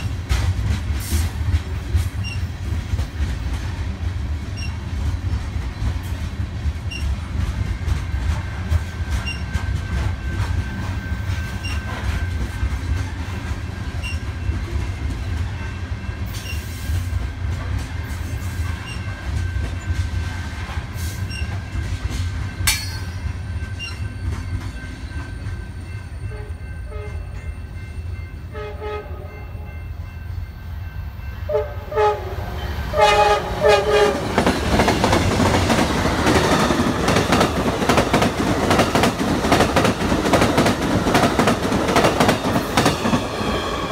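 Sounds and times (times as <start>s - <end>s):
freight train cars rumbling: 0.0s - 43.9s
locomotive horn blasts: 26.2s - 27.4s, 28.5s - 29.8s, 31.4s - 34.4s
train wheel clicks: 34.3s - 43.6s.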